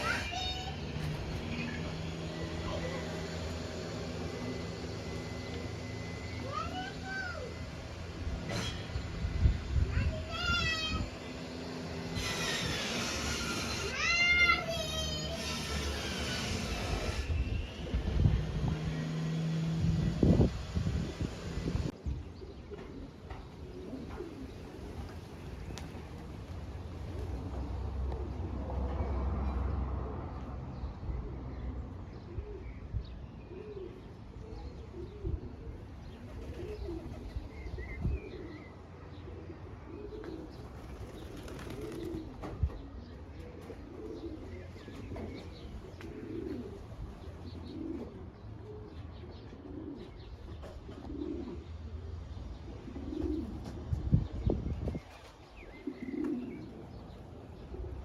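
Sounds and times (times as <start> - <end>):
pigeons cooing: 22.4 - 28.6, 33.5 - 58.0.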